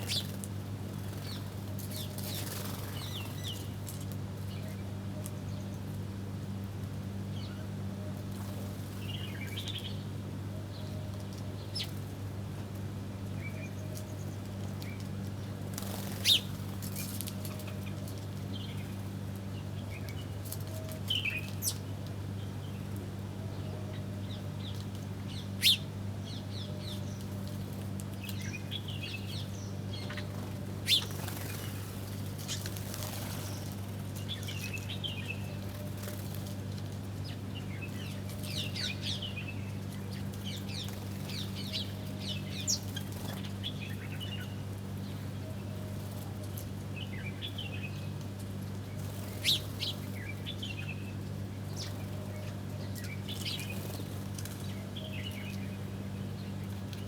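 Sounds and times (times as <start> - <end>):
wings fluttering: 0.0 - 4.1, 15.7 - 19.0, 30.1 - 34.9, 35.6 - 37.1, 53.4 - 54.7
small birds chirping: 0.0 - 4.8, 13.4 - 22.9, 23.5 - 45.4, 48.8 - 57.0.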